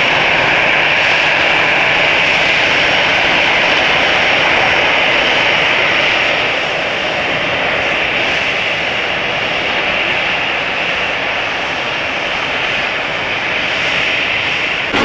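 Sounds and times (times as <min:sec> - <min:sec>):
jet engines running: 0:14.2 - 0:15.0.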